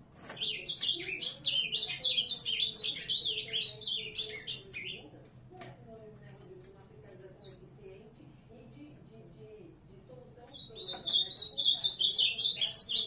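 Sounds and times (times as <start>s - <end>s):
bird warbling song: 0.1s - 5.1s, 10.5s - 13.0s.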